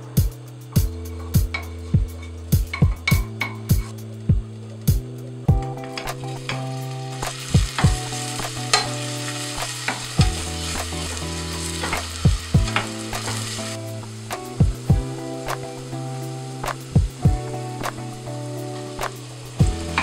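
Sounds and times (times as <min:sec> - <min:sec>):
utensil clicking against pan: 0:05.6 - 0:09.0, 0:11.8 - 0:13.4
food sizzling in oil: 0:05.6 - 0:20.0.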